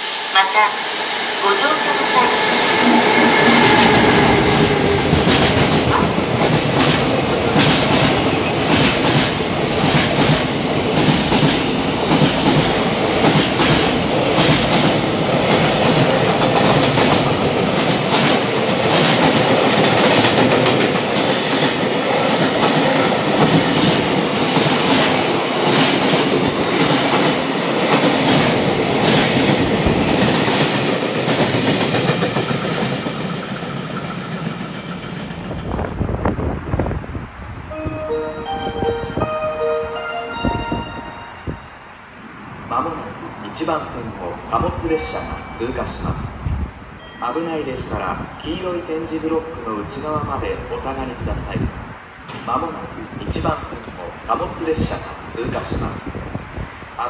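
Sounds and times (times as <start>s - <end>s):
train wheels clickety-clack: 2.4s - 36.4s, 52.3s - 52.8s.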